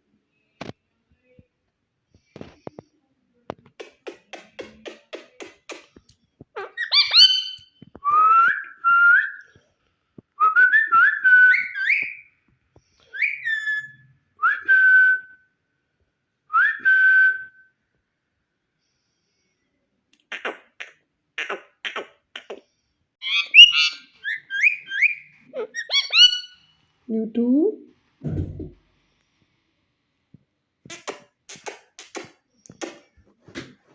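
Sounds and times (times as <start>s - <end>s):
parakeet clicking and chattering: 3.6s - 7.8s
parakeet whistling: 6.6s - 9.4s, 10.6s - 12.3s, 13.1s - 14.0s, 23.2s - 26.7s.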